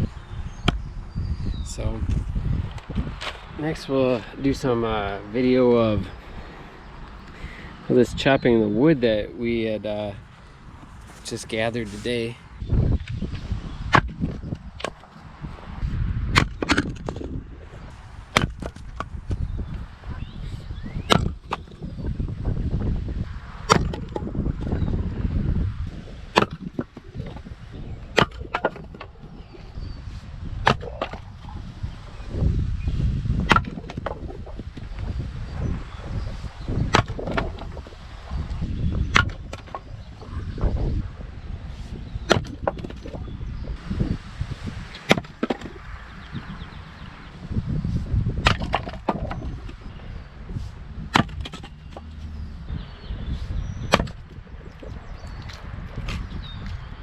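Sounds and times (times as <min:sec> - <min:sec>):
axe chopping wood: 0:13.9 - 0:15.1, 0:16.3 - 0:17.4, 0:18.3 - 0:19.1, 0:21.0 - 0:21.8, 0:23.6 - 0:24.4, 0:26.3 - 0:27.5, 0:28.1 - 0:29.4, 0:30.6 - 0:31.6, 0:33.3 - 0:34.9, 0:36.7 - 0:37.8, 0:38.9 - 0:39.9, 0:42.3 - 0:43.2, 0:45.0 - 0:45.8, 0:48.3 - 0:49.9, 0:51.0 - 0:52.3, 0:53.8 - 0:54.4.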